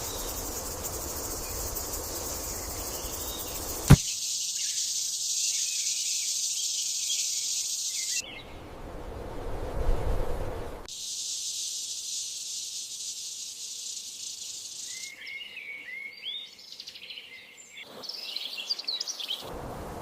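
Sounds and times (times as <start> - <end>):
high-pitched insect chorus: 0.0 - 8.2, 10.9 - 19.5
soft rushing background: 8.4 - 10.9.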